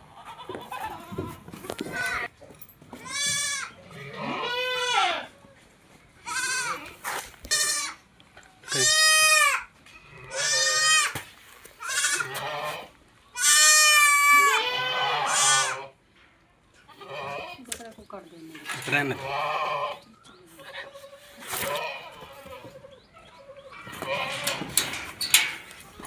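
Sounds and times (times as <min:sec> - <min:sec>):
goat bleating: 0:00.1 - 0:02.3, 0:03.0 - 0:05.3, 0:06.2 - 0:08.0, 0:08.6 - 0:11.2, 0:11.8 - 0:16.0, 0:16.9 - 0:17.7, 0:18.8 - 0:24.8.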